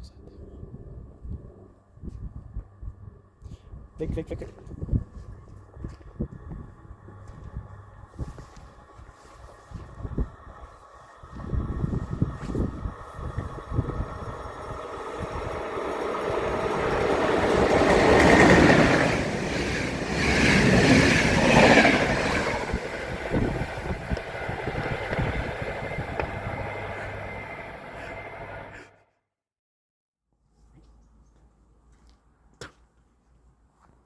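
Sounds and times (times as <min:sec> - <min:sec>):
train passing on tracks: 0:06.1 - 0:29.0.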